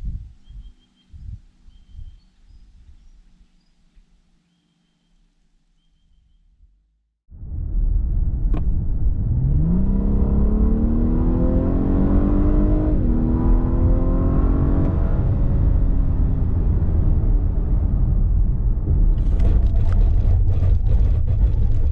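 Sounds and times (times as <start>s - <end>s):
road and wind noise: 0.0s - 3.4s, 7.3s - 21.9s
car engine accelerating: 7.4s - 21.9s.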